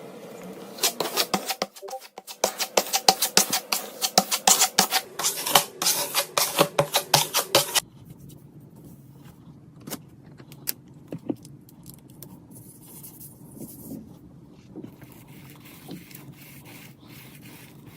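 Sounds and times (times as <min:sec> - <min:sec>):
rapid scraping strokes: 0:00.7 - 0:07.8, 0:15.0 - 0:17.9.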